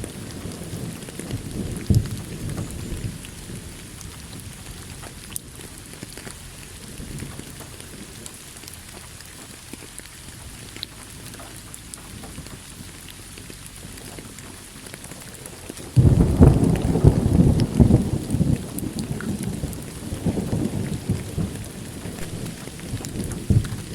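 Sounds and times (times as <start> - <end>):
thunder clap and rumble: 0.0 - 9.0, 15.0 - 23.9
steady rain falling: 0.0 - 23.9.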